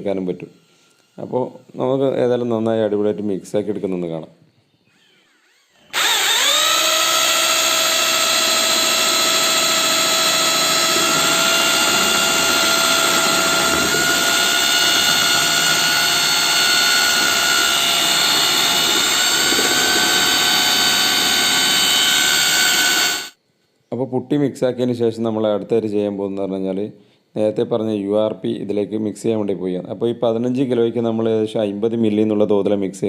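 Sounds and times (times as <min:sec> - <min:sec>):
mixer motor whine: 0:04.9 - 0:23.4
paddle churning putty: 0:05.9 - 0:23.2.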